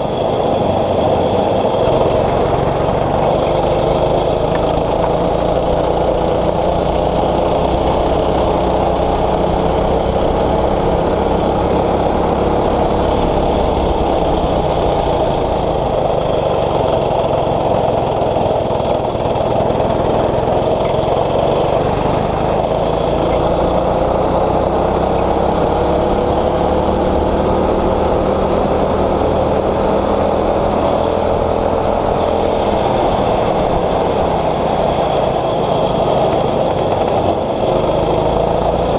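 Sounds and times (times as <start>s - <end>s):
kart engine running: 0.0s - 38.9s.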